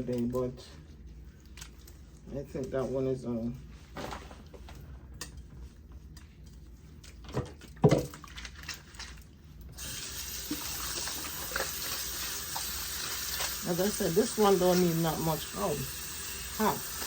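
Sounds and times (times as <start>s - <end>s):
handling knocks or splashes: 7.1s - 9.3s
tap water running into sink: 9.7s - 17.0s.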